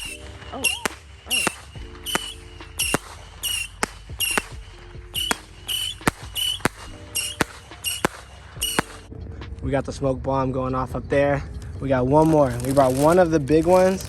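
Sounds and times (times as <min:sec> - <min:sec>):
rocket launch whistle: 0:00.0 - 0:09.1
rocket sharp crack: 0:00.0 - 0:09.1, 0:12.2 - 0:14.0.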